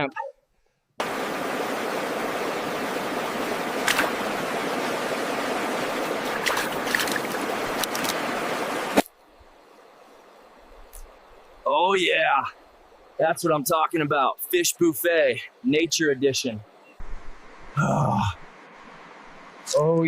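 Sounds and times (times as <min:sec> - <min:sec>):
sharp splashes: 0:01.0 - 0:09.1
river water rushing: 0:01.0 - 0:11.4.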